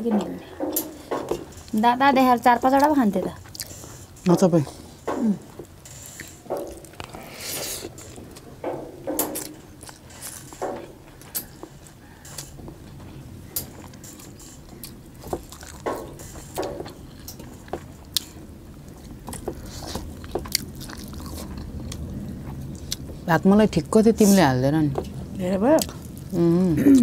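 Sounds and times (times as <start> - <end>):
chewing and mouth smacks: 3.4 - 3.8, 6.2 - 8.3, 13.8 - 16.0.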